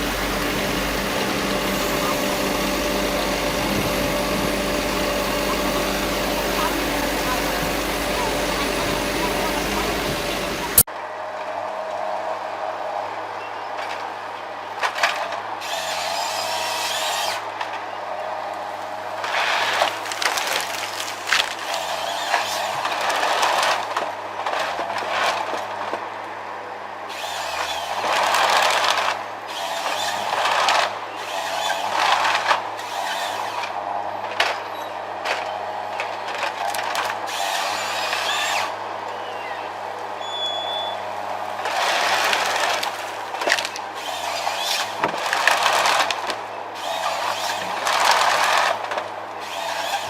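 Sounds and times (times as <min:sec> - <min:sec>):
machine engine humming: 0:00.0 - 0:10.9.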